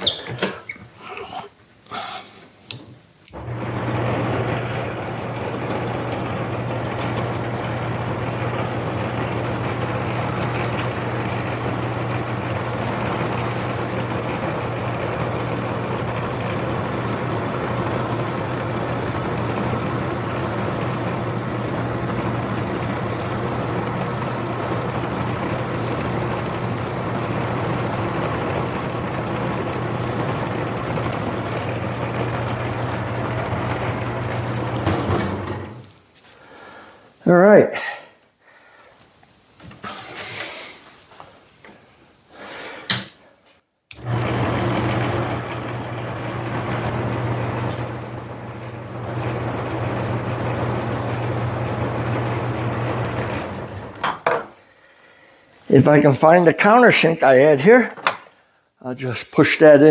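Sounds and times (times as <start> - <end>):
metal lathe cutting steel: 3.4 - 35.9, 44.0 - 54.2.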